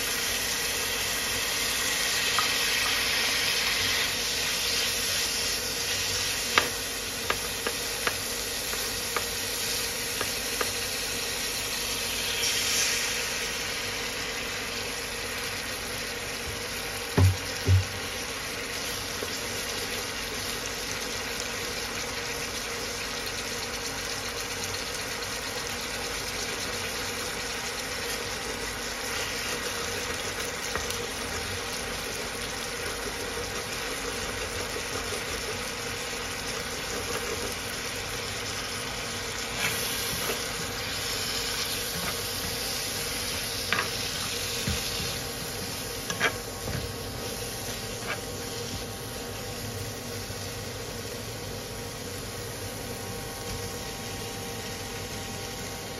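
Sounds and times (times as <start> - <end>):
egg and greens sizzling in a pan: 0.0 - 55.9
spatula tapping and scraping pan: 6.5 - 9.4, 46.0 - 46.8.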